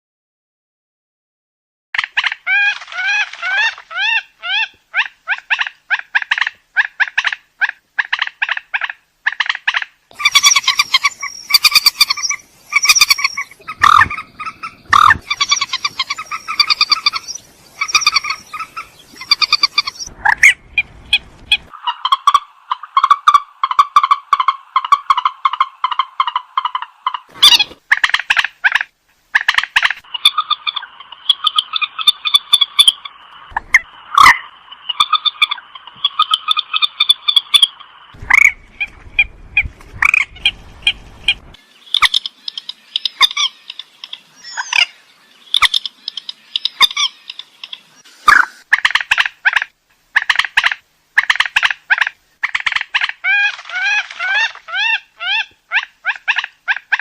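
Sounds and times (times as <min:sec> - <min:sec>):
swamphen calls: 0:02.0 - 0:57.0
rapid bird chattering: 0:08.0 - 0:28.8, 0:40.0 - 0:57.0
harsh honking bird calls: 0:10.2 - 0:20.6.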